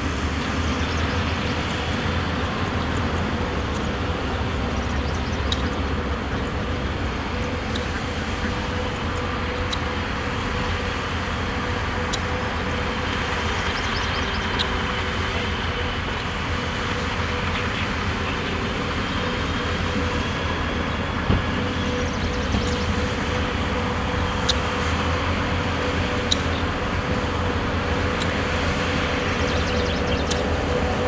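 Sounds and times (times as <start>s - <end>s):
diesel machinery running: 0.0s - 31.0s
machinery whine: 0.0s - 31.0s.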